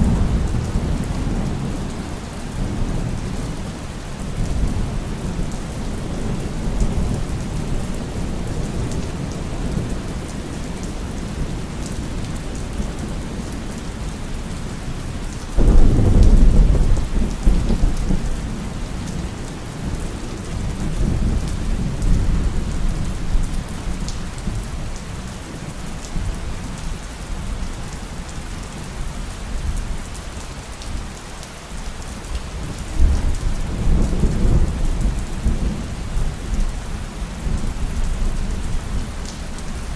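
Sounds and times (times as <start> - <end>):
thunder rumbling: 0.0 - 10.2, 15.6 - 24.7
heavy rain: 0.0 - 39.9.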